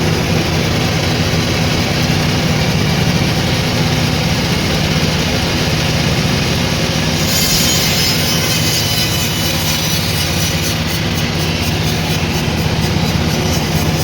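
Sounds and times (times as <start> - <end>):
sawmill machinery drone: 0.0 - 14.0
high-pitched squeal: 5.2 - 14.0.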